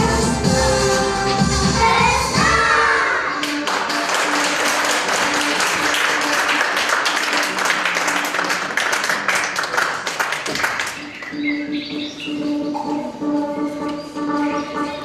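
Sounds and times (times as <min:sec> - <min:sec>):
song with sung vocals: 0:00.0 - 0:03.6
audience applause: 0:03.4 - 0:11.1.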